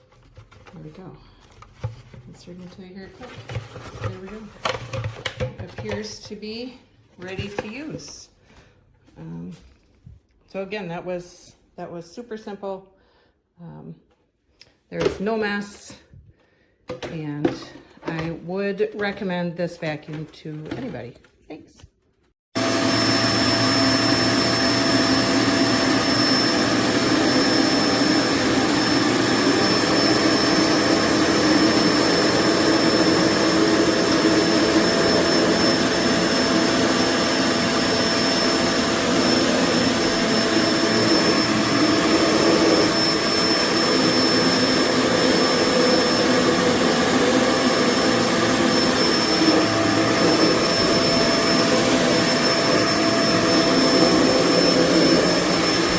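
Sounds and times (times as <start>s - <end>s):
upright vacuum cleaner running: 0.1s - 6.4s, 7.2s - 8.2s, 17.0s - 19.2s, 22.6s - 55.9s.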